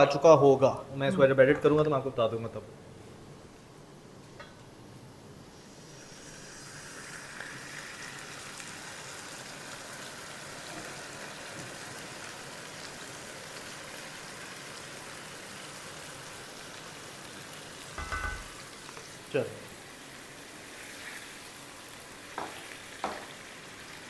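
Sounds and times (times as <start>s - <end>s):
chicken frying in a pan: 5.5s - 24.0s.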